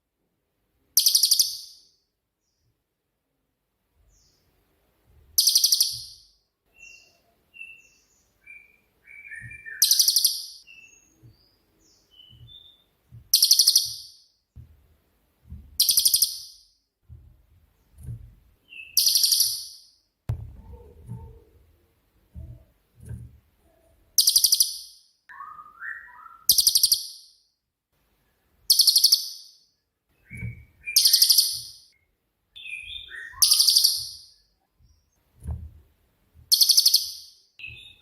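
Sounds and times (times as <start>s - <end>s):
bird chirps and whistles: 5.4s - 6.2s, 6.8s - 11.1s, 12.1s - 14.2s, 18.7s - 19.8s, 24.2s - 27.3s, 28.7s - 29.5s, 30.2s - 31.9s, 32.6s - 34.4s, 36.5s - 38.0s
low thumps: 14.5s - 15.8s, 17.0s - 18.6s, 20.3s - 23.6s, 35.2s - 36.5s.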